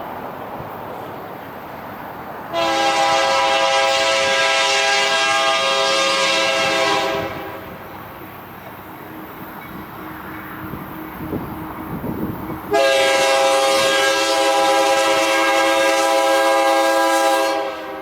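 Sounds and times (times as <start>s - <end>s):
low train rumble: 0.0s - 18.0s
locomotive air horn blast: 2.5s - 7.8s, 12.7s - 18.0s.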